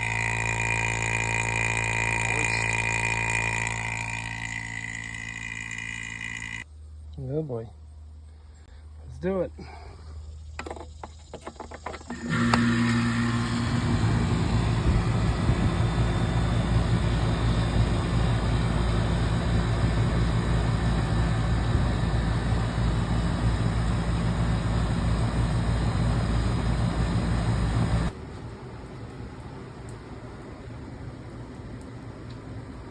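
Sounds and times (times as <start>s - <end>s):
compressor hum: 0.0s - 7.0s, 12.1s - 30.8s.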